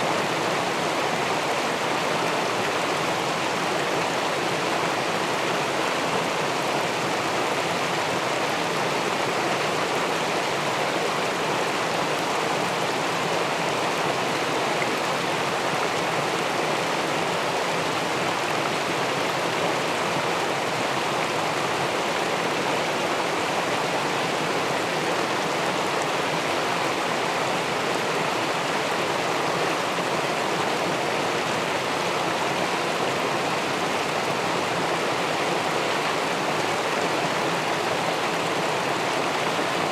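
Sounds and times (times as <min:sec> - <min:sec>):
river water rushing over weir: 0:00.0 - 0:39.9.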